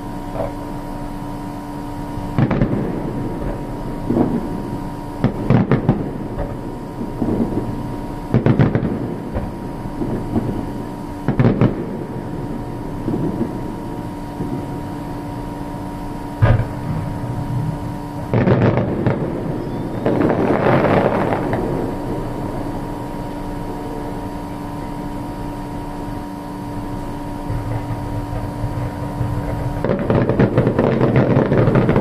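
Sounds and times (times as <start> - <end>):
fireworks booming with echoes: 0.0 - 32.0.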